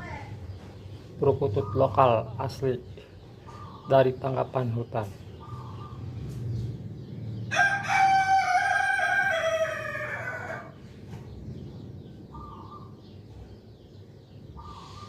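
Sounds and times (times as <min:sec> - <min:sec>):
rooster crowing: 0:07.5 - 0:10.8.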